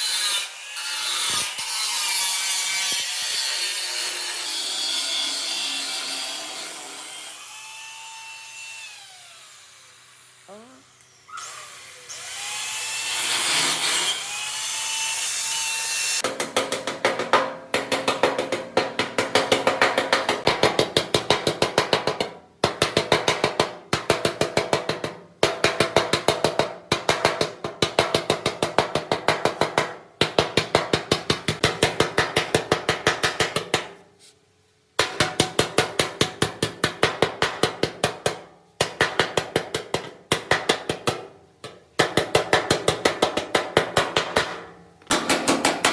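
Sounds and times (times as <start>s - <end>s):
power tool whirring: 6.0s - 16.2s.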